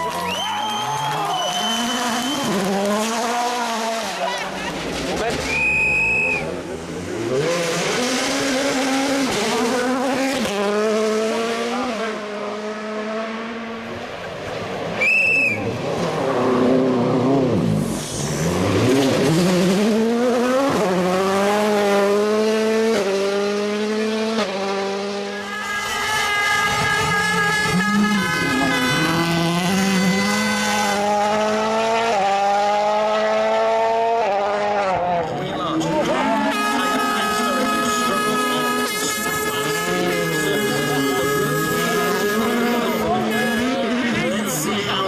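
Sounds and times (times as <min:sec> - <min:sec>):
short high whistle: 0:00.2 - 0:02.6, 0:05.5 - 0:06.5, 0:15.0 - 0:15.7
rally car engine accelerating: 0:00.2 - 0:45.0.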